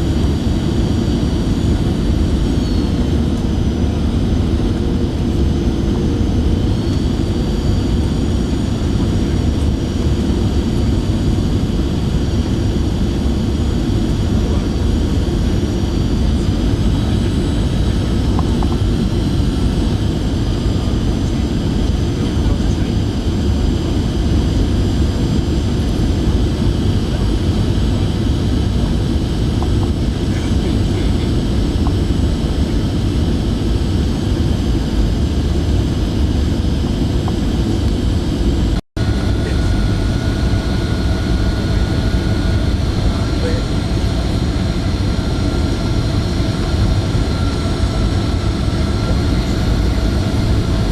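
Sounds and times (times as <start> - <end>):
airliner cabin engine rush: 0.0 - 50.9
faint high whining tones: 0.1 - 12.1.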